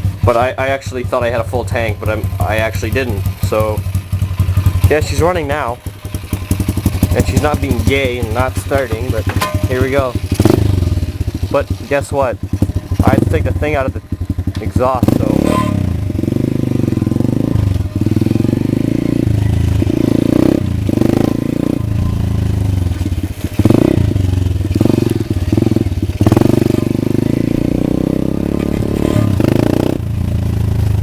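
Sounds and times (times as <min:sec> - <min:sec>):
pit bike engine revving: 0:00.0 - 0:31.0.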